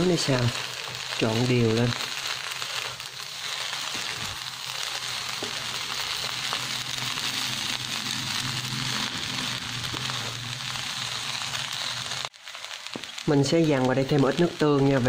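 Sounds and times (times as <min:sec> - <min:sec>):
fried rice sizzling in a wok: 0:00.0 - 0:15.0.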